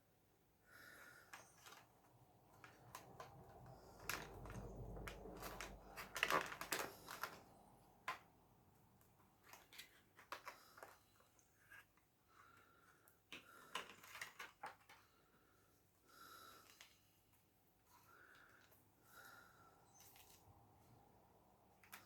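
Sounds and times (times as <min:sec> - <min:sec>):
plastic and card crinkling: 0:01.3 - 0:08.3, 0:09.0 - 0:12.0.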